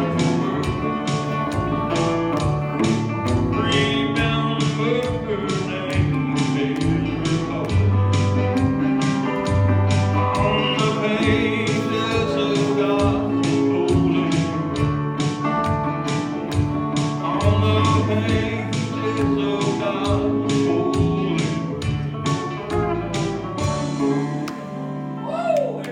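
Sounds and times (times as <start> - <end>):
person singing: 0.0 - 8.4, 10.1 - 15.2, 17.0 - 23.2
guitars playing: 0.0 - 25.9.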